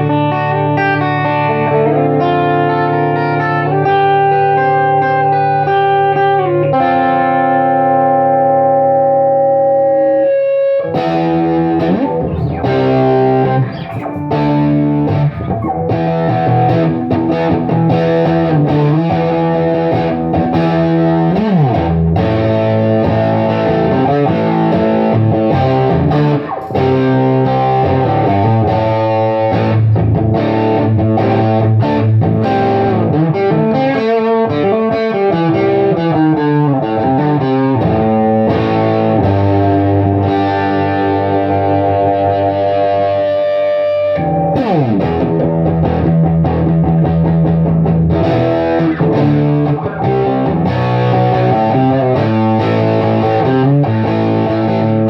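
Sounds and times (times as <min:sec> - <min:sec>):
bent guitar note swooping: 0:00.0 - 0:55.0
distorted electric guitar: 0:00.0 - 0:55.0.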